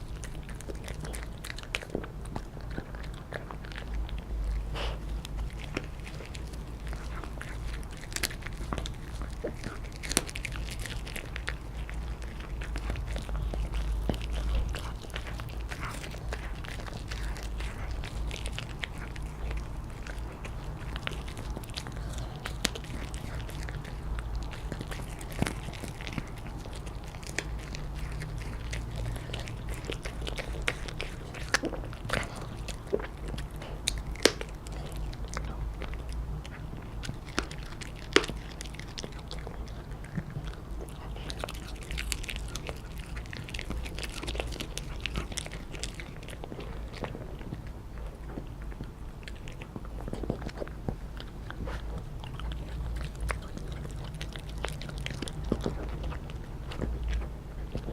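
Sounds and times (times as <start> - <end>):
dog crunching on a chew: 0.0 - 57.9
steady low hum: 0.0 - 57.9.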